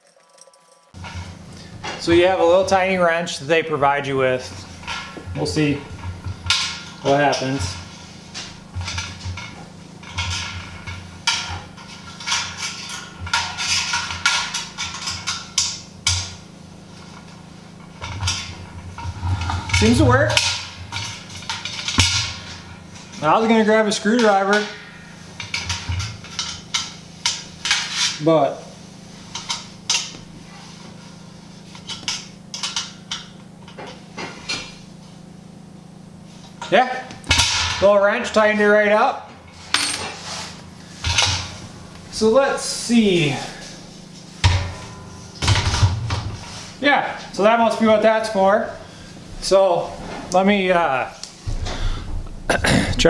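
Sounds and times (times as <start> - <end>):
low hum: 51.2 - 53.0.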